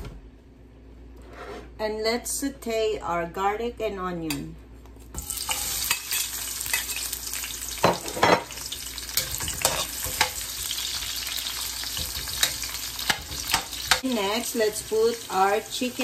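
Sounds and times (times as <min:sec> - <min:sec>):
garlic and onion sizzling in oil: 0:05.2 - 0:16.0
metal spatula scraping a pan: 0:09.1 - 0:14.0.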